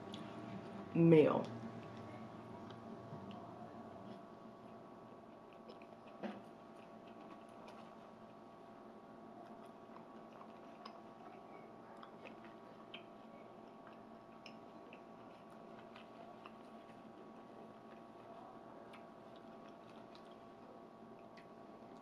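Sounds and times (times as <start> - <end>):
steady low hum: 0.0 - 22.0
wet mouth clicks chewing: 4.7 - 8.0, 9.4 - 18.3, 18.9 - 22.0.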